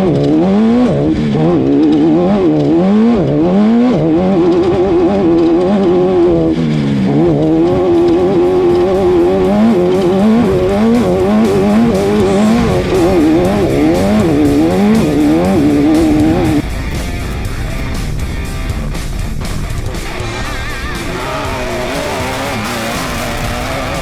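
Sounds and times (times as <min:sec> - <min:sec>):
race car engine revving: 0:00.0 - 0:24.0
music playing: 0:08.3 - 0:24.0.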